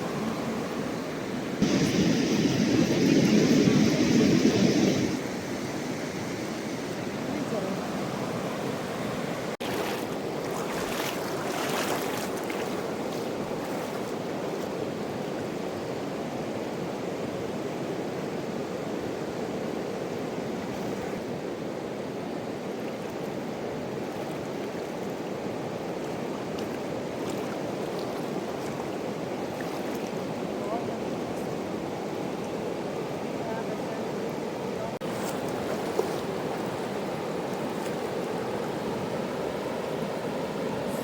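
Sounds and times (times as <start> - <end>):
mountain river rushing: 0.0 - 17.5
water splashes: 7.3 - 14.8, 22.8 - 31.5, 33.8 - 38.7.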